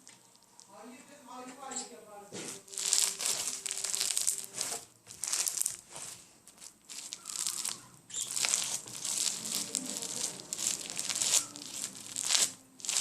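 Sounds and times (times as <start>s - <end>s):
slime crackling when squeezed: 2.7s - 13.0s.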